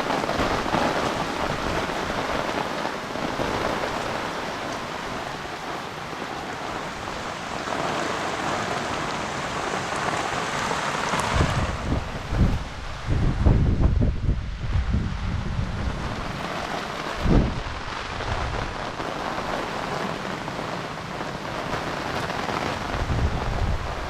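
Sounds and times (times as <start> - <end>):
heavy rain on water: 0.0 - 24.0
wind buffeting microphone: 11.0 - 24.0.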